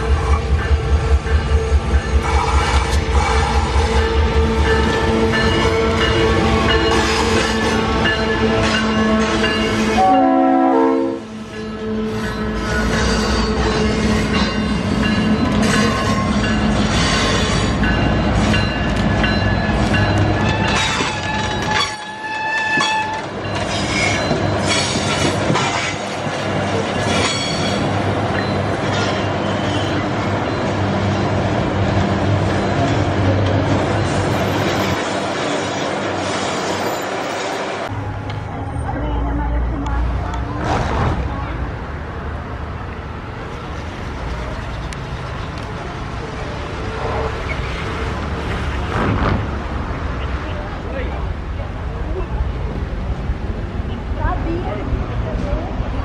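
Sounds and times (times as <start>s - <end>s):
train wheels clattering and squealing: 0.0s - 10.0s, 11.4s - 30.9s, 32.4s - 37.9s, 46.9s - 49.6s
locomotive hum: 0.0s - 56.0s
horn-like tone: 8.8s - 12.2s.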